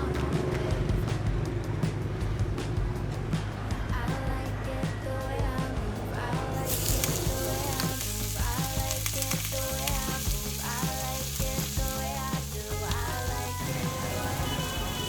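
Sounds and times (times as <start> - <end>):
background music: 0.0 - 15.0
food sizzling: 6.6 - 15.0.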